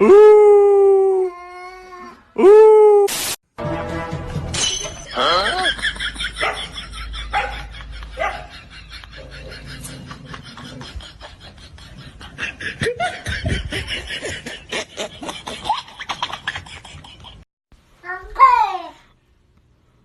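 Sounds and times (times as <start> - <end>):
people talking: 5.1 - 5.8, 18.1 - 19.0
people laughing: 5.1 - 17.4.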